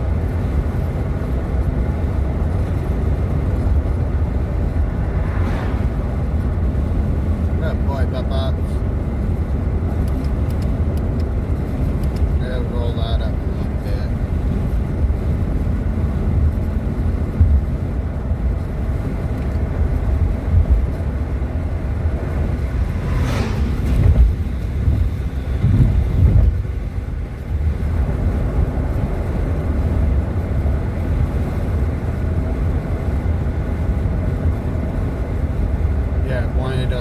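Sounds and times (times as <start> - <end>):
vehicle road rumble: 0.0 - 37.0.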